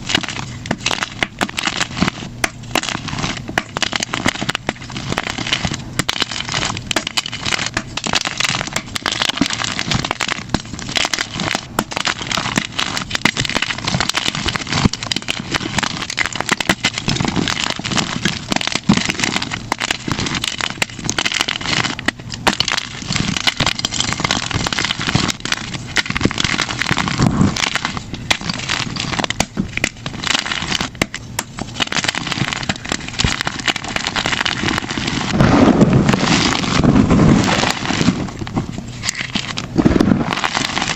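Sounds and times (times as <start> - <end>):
chalk crunching and crackling: 0.0 - 40.9.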